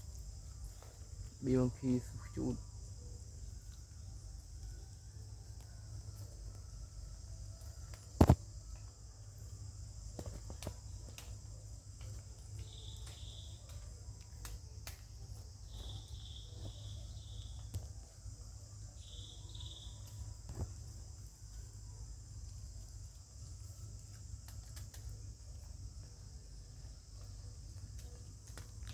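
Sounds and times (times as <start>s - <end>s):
insects droning: 0.0s - 28.9s
faint clicks: 22.4s - 26.1s.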